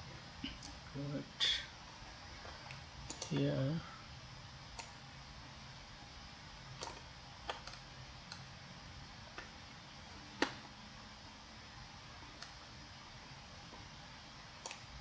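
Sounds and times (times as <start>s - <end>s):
faint steady hiss: 0.0s - 15.0s
computer mouse clicking: 2.4s - 3.6s, 4.7s - 5.0s, 6.8s - 8.5s, 10.4s - 10.7s, 12.3s - 12.6s, 14.6s - 15.0s.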